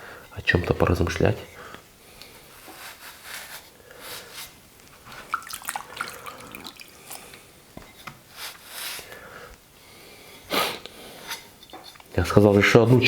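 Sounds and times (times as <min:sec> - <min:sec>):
hand wiping ceramic cup: 0:02.5 - 0:07.4
water splashing and dripping: 0:05.0 - 0:07.4.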